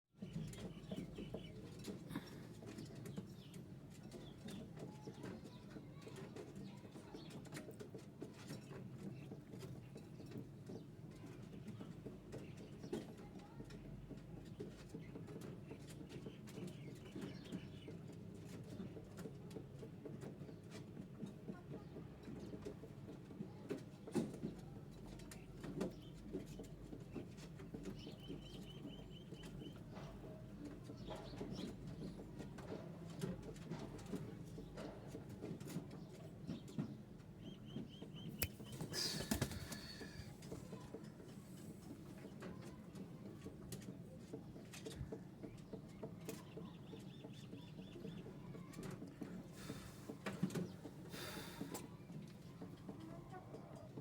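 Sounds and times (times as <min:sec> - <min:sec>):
sparrows clicking calls: 0:00.2 - 0:20.8, 0:24.3 - 0:53.9
sparrow high chirps: 0:37.4 - 0:40.4
soft low murmur: 0:37.9 - 0:46.4.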